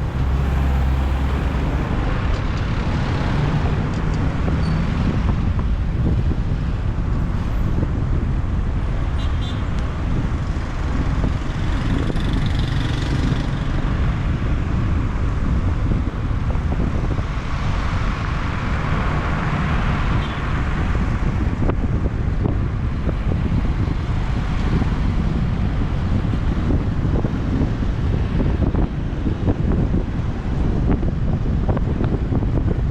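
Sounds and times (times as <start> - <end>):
motorbike engine rumble: 0.0 - 2.4
passing traffic: 0.0 - 32.9.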